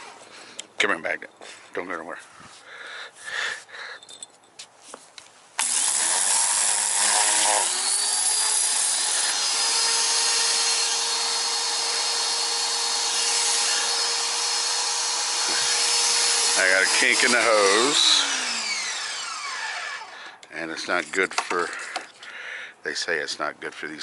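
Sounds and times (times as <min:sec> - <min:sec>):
pressure washer running: 0:13.4 - 0:20.2.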